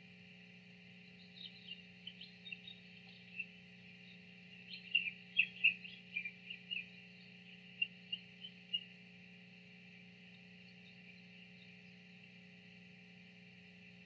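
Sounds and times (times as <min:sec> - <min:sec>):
steady low hum: 0:00.0 - 0:14.0
small birds chirping: 0:00.7 - 0:14.0.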